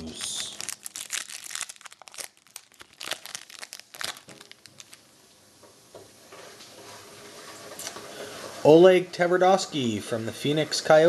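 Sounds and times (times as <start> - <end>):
wrapper crinkling and tearing: 0.0 - 5.1
wrapper rustling: 0.0 - 5.1.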